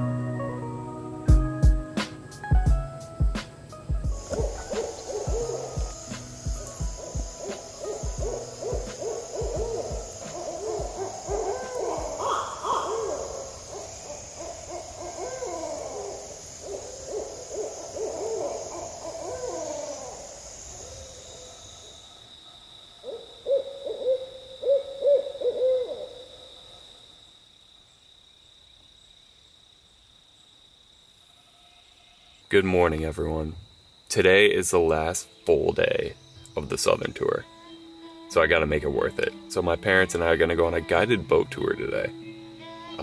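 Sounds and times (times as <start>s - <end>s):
night insects droning: 0.0s - 43.0s
low thumps: 1.3s - 12.2s
owls wailing: 4.2s - 22.2s, 23.0s - 26.8s
owl hoots: 4.2s - 26.9s.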